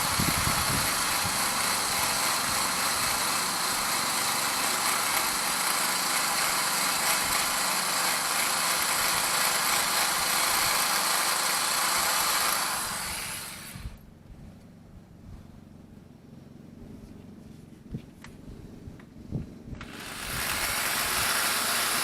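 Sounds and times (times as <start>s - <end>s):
grinder whining: 0.0s - 14.0s, 19.8s - 22.0s.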